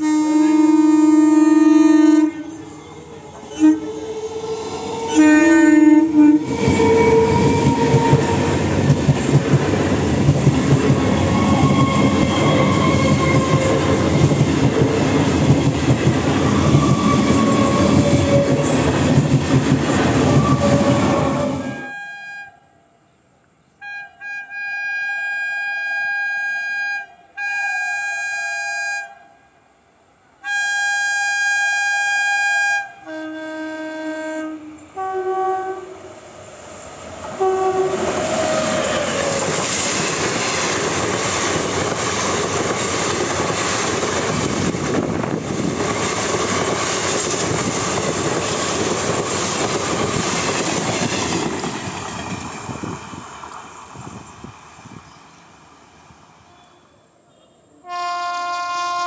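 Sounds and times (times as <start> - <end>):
train horn blasts: 0.0 - 2.8, 3.5 - 8.6, 11.3 - 14.1, 16.5 - 18.8, 20.3 - 22.9, 23.8 - 29.5, 30.4 - 36.1, 37.3 - 39.4, 56.5 - 59.0
high-pitched train horn: 0.0 - 8.7, 11.2 - 14.2, 16.5 - 18.8, 20.2 - 23.0, 23.8 - 29.6, 30.4 - 36.2, 37.3 - 39.5, 56.4 - 59.0
train rumbling past: 0.0 - 22.0, 33.0 - 57.2.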